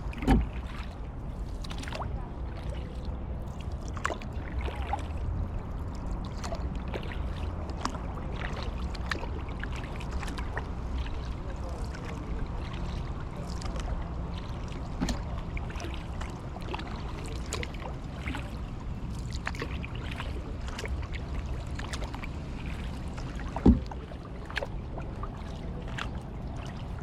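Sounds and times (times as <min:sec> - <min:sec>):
paddle splashing water: 0:00.0 - 0:27.0
thump: 0:23.6 - 0:23.9.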